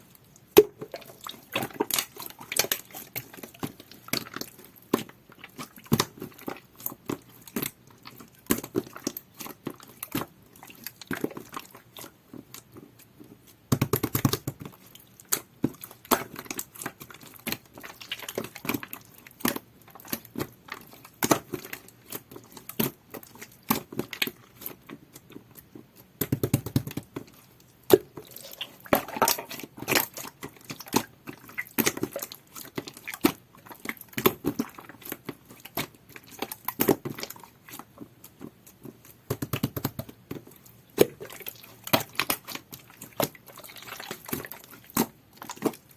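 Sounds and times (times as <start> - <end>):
slime squishing: 0.0 - 45.9.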